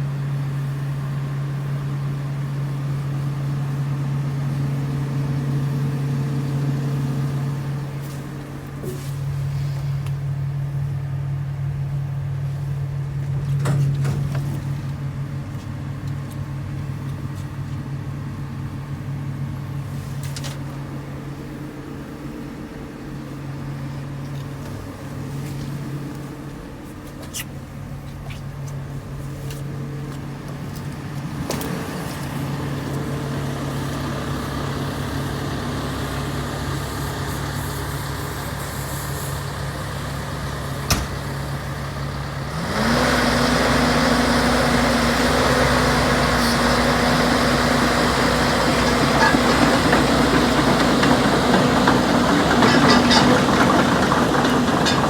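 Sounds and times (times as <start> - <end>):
excavator diesel engine running: 28.7 - 55.0.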